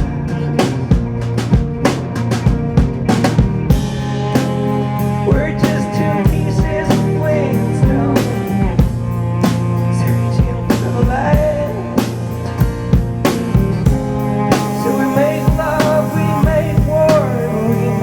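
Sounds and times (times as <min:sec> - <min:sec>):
drum kit beat: 0:00.0 - 0:18.0
folk band playing: 0:00.0 - 0:18.0.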